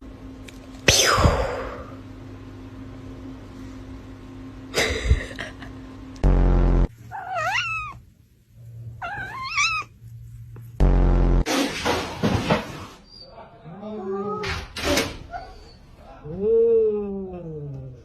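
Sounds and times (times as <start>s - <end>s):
cat meowing: 7.1s - 8.0s, 9.0s - 10.0s.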